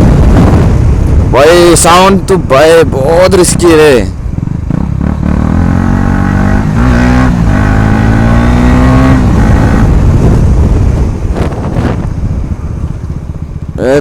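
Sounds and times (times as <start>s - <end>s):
motorcycle engine revving: 3.0s - 14.0s.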